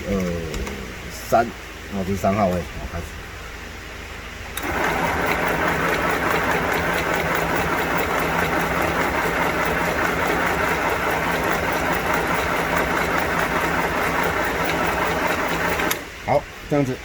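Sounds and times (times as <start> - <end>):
sewing machine running: 4.6 - 16.1.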